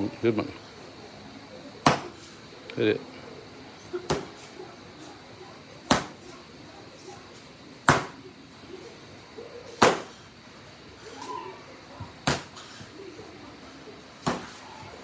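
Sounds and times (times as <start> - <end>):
karate strikes smacking target: 1.8 - 2.1, 4.1 - 4.3, 5.9 - 6.2, 7.9 - 8.2, 9.8 - 10.2, 12.2 - 12.6, 14.2 - 14.6.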